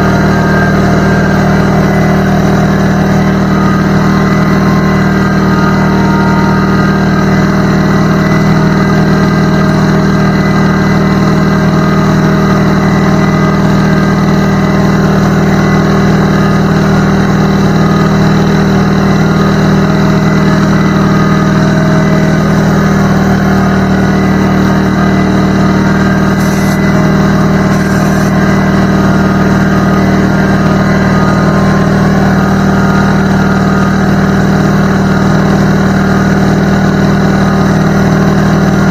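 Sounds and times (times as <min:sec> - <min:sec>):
air compressor running: 0:26.4 - 0:26.9, 0:27.7 - 0:28.4.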